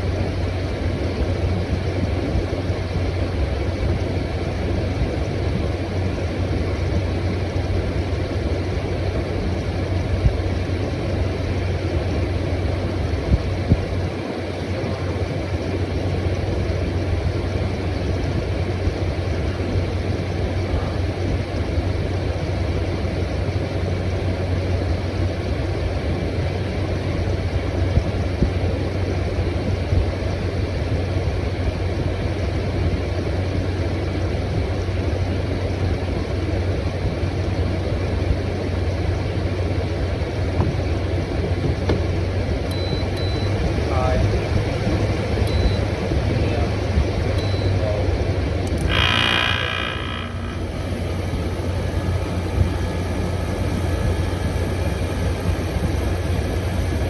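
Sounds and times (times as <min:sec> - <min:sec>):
air conditioner fan blowing: 0:00.0 - 0:57.0
low hum: 0:41.6 - 0:57.0.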